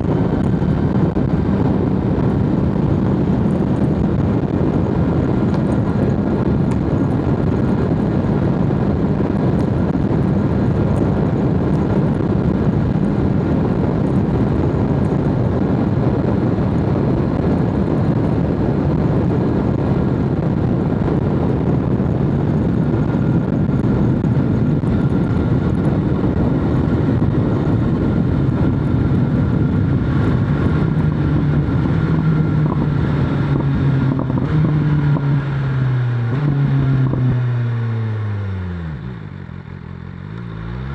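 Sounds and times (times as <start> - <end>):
motorcycle engine running: 0.0 - 40.9
rushing wind noise: 0.0 - 40.9.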